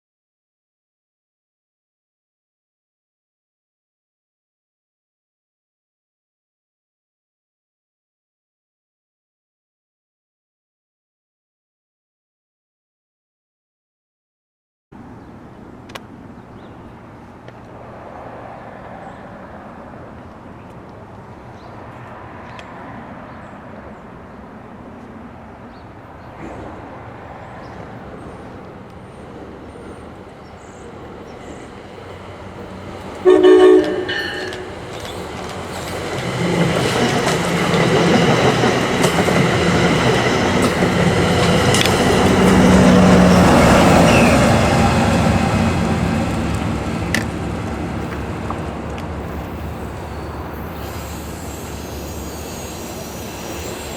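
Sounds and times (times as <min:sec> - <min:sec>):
train passing on rails: 0:15.0 - 0:53.9
locomotive horn blast: 0:33.2 - 0:35.0.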